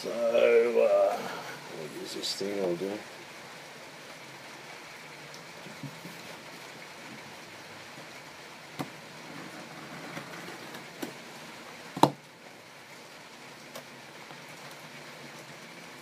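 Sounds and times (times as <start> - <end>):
steady low hiss: 0.0 - 16.0.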